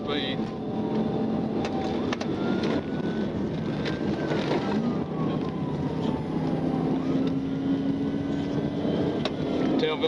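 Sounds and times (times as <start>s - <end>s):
engine road and wind noise: 0.0s - 10.0s
faint police siren wailing: 0.0s - 10.0s.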